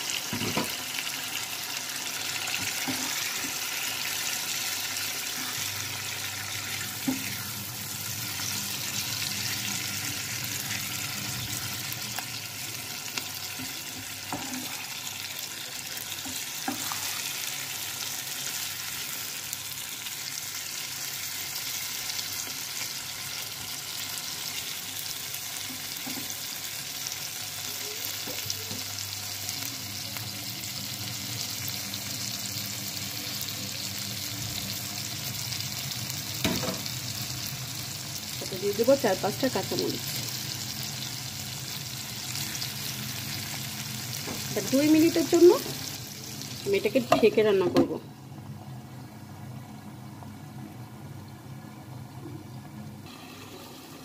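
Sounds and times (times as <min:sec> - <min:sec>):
shrimp sizzling in pan: 0:00.0 - 0:47.9, 0:53.0 - 0:54.0
spatula scraping pan: 0:13.6 - 0:15.0, 0:16.2 - 0:17.4.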